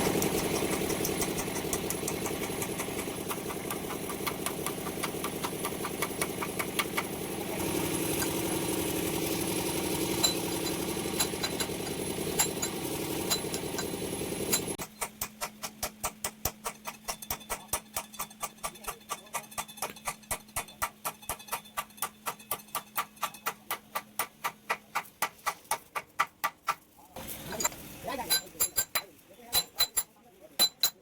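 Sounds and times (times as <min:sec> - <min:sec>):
engine running with clatter: 0:00.0 - 0:20.7.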